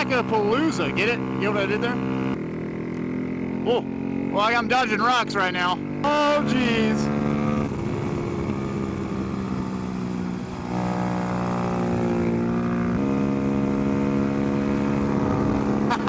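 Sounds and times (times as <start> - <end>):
motorbike engine racing: 0.0 - 16.0.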